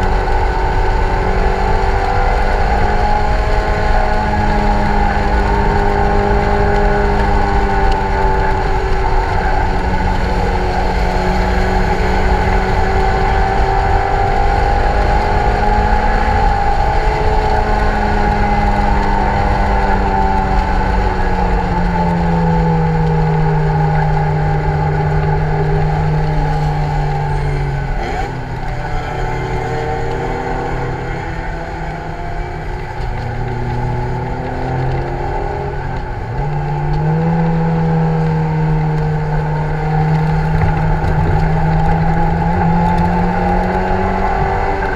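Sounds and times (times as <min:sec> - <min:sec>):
car engine working hard: 0:00.0 - 0:44.9.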